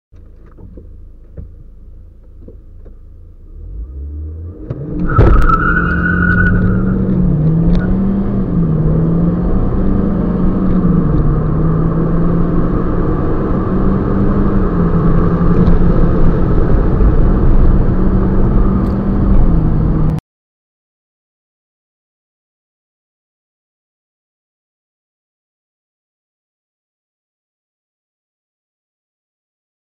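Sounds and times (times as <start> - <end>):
car engine accelerating: 0.2 - 20.2
tyre squeal: 5.0 - 8.0.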